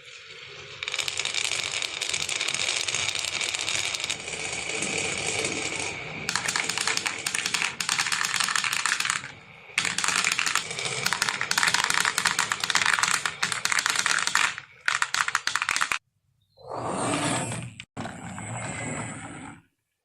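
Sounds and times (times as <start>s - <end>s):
marbles clattering down wooden run: 0.5s - 16.0s.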